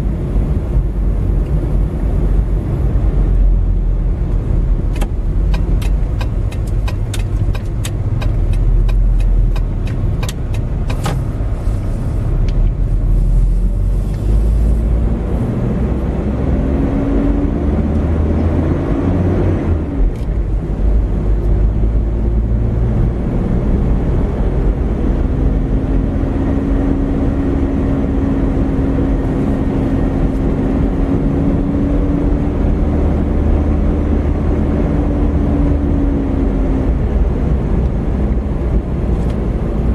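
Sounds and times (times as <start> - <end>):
car engine and road rumble: 0.0 - 39.9
sharp clicks: 4.9 - 11.2.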